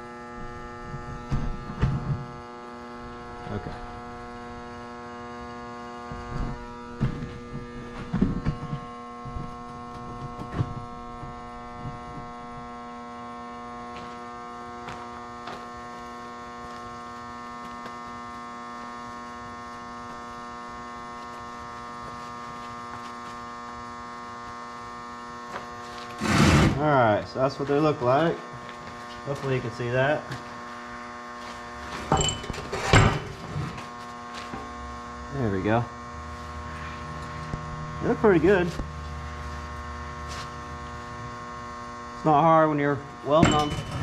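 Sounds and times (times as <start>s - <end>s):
electrical mains hum: 0.0s - 44.0s
knocks and clatter: 43.4s - 44.0s.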